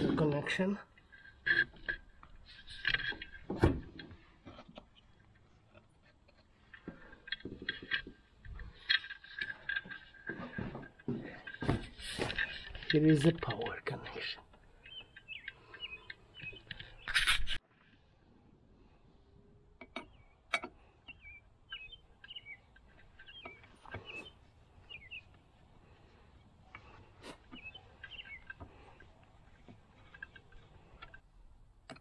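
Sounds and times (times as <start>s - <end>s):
small birds chirping: 6.6s - 17.6s, 18.8s - 31.3s.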